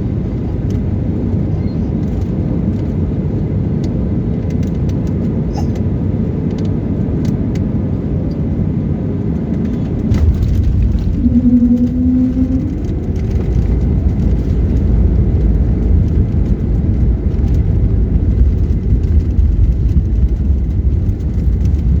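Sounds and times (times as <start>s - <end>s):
jet airliner rumble: 0.0s - 22.0s
humming tone: 10.2s - 14.6s.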